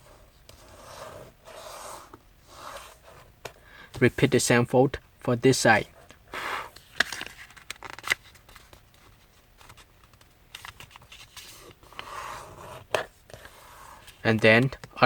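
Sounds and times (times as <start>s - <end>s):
paper sliding rustle: 0.0s - 3.3s, 10.6s - 14.2s.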